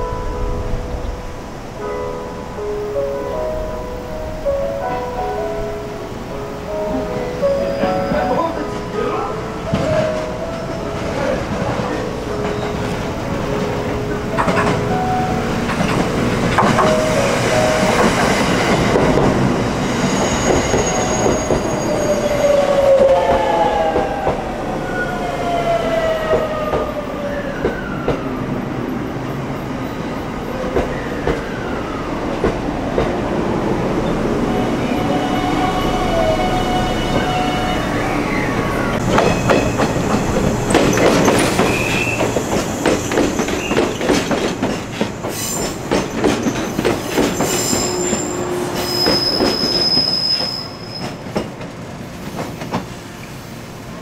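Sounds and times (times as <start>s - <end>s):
electric train whining: 0.0s - 54.0s
train wheels clattering over rail joints: 15.6s - 19.5s, 39.0s - 48.3s.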